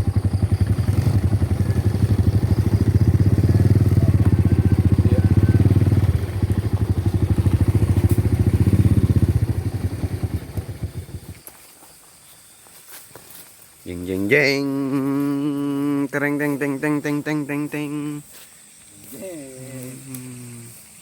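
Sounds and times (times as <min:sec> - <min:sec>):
small engine running: 0:00.0 - 0:11.4.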